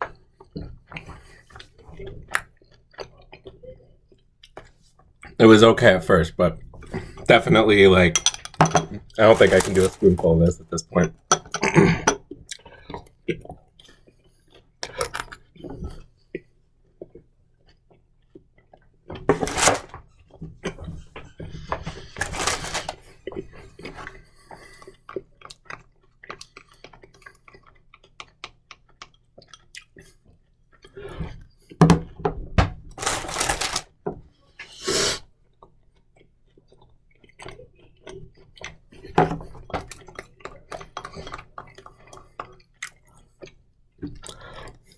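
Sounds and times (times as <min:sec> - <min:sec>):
spoon scraping in a jar: 0:07.4 - 0:12.2, 0:21.8 - 0:23.0
chewing: 0:24.5 - 0:31.4, 0:35.6 - 0:39.1, 0:39.9 - 0:44.9.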